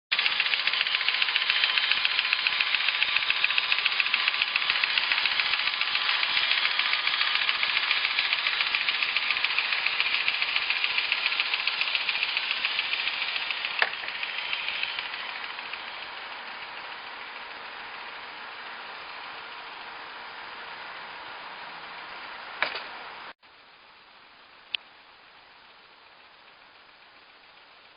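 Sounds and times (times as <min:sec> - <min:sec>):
model train clattering: 0:00.1 - 0:18.1
sharp click: 0:00.2 - 0:15.8, 0:22.6 - 0:23.0.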